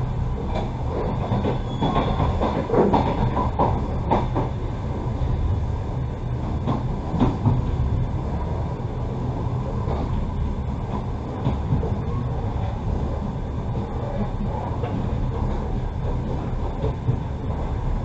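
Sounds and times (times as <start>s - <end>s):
train carriage rumbling: 0.0s - 18.0s
wheel clacks over rail joints: 0.5s - 4.6s.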